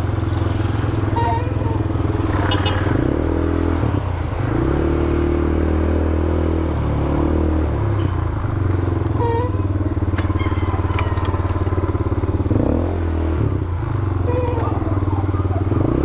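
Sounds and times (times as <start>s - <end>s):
atv engine running: 6.5s - 16.0s.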